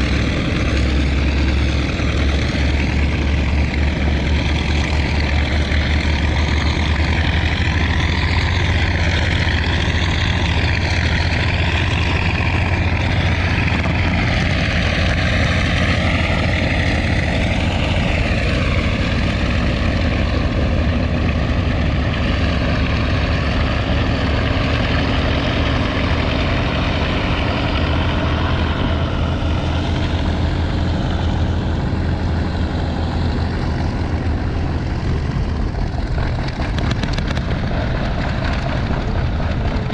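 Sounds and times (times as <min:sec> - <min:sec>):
propeller aircraft engines droning: 0:00.0 - 0:39.9.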